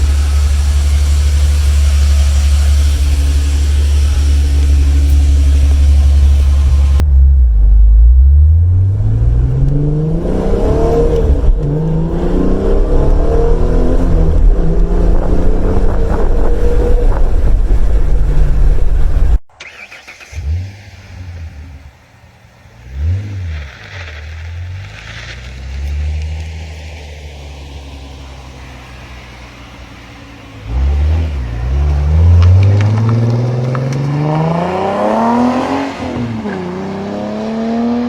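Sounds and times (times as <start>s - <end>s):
car exhaust accelerating hard: 0.0s - 19.4s, 20.4s - 38.0s
engine throttle blips: 0.0s - 22.0s.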